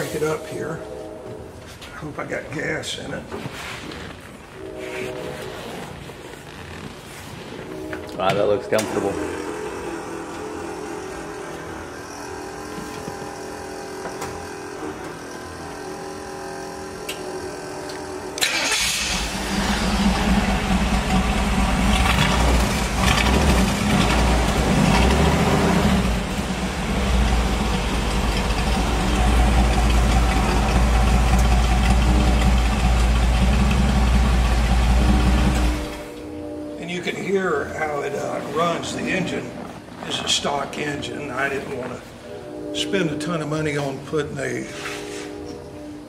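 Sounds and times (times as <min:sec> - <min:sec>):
car engine starting and idling: 0:07.6 - 0:36.8.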